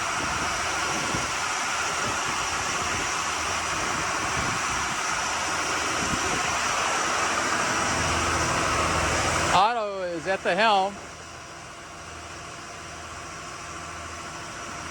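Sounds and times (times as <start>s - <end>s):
wind buffeting microphone: 0.0s - 9.5s
boat diesel engines droning: 0.0s - 14.9s.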